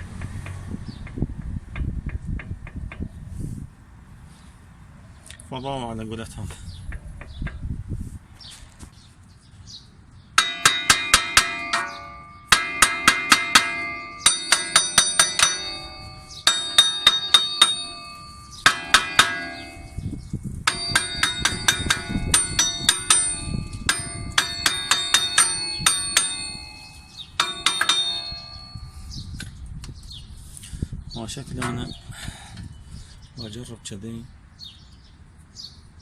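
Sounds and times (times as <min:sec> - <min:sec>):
hammer striking steel: 0:10.4 - 0:29.2, 0:31.6 - 0:32.0.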